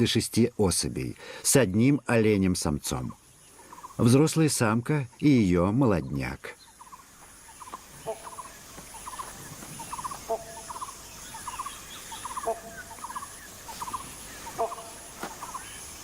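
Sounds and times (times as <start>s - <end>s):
faint swamp wildlife hum: 0.0s - 16.0s
short trilling animal calls: 7.6s - 15.9s.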